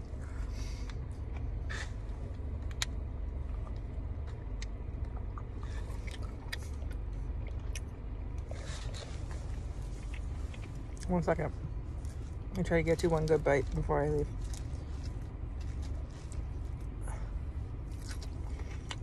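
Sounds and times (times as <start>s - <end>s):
low rumble inside a car: 0.0s - 19.0s
chewing salad: 2.3s - 11.1s, 11.9s - 19.0s
crisp crunches: 13.6s - 16.9s, 17.9s - 19.0s.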